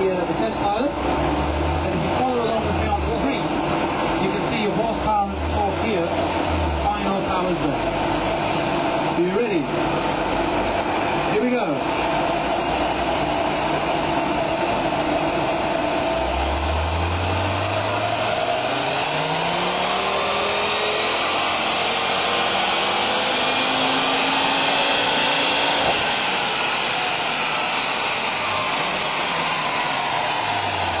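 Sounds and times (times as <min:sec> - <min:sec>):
cooling fan air rush: 0:00.0 - 0:31.0
turbocharged car engine revving: 0:00.0 - 0:31.0.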